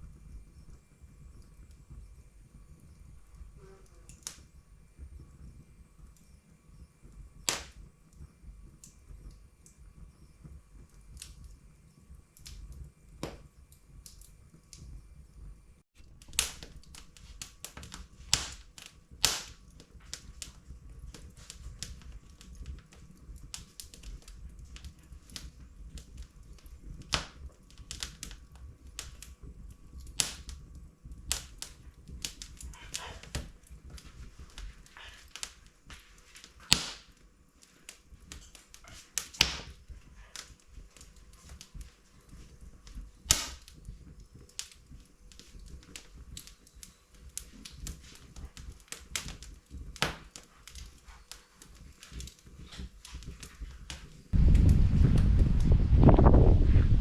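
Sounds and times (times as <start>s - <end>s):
wood fire crackling: 0.0s - 57.0s
logs popping: 7.4s - 7.8s, 16.0s - 54.7s.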